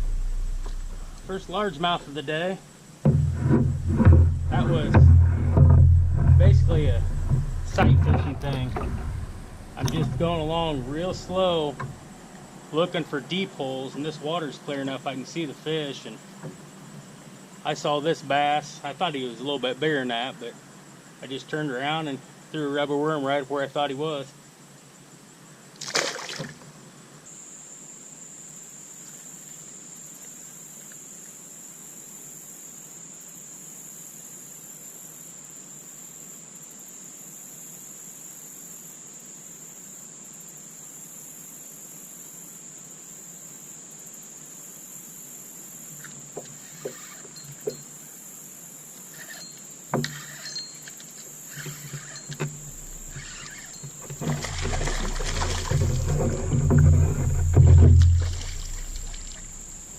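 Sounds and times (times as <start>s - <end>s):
sharp clicks and knocks: 0.0s - 2.0s, 3.1s - 12.0s
loud noisy burst: 0.0s - 2.2s
high-pitched insect drone: 31.9s - 59.9s.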